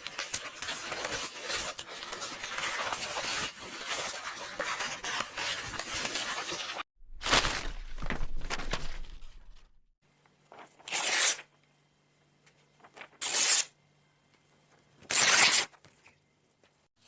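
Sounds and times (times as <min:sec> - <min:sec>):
book pages rustling and turning: 0:00.0 - 0:10.9, 0:12.5 - 0:13.2
paper tearing: 0:10.8 - 0:11.5, 0:13.0 - 0:13.7, 0:15.0 - 0:15.7.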